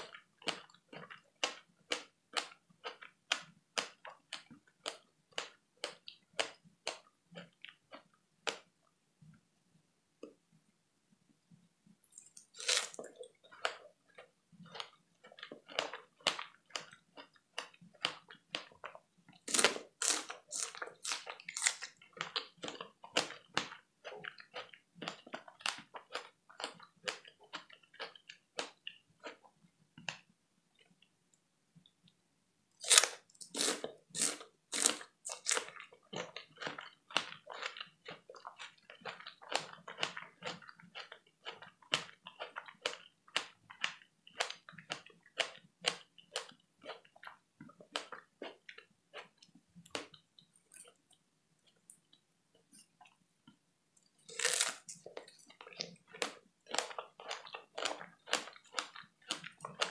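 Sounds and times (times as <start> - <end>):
chewing strawberries: 0.0 - 8.7, 12.0 - 31.0, 32.8 - 59.9.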